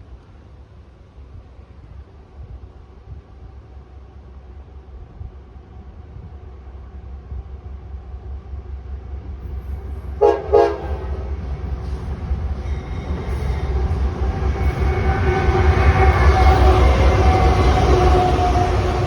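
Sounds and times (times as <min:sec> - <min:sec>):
locomotive engine and rolling: 0:06.1 - 0:19.0
locomotive horn blasts: 0:10.2 - 0:11.3.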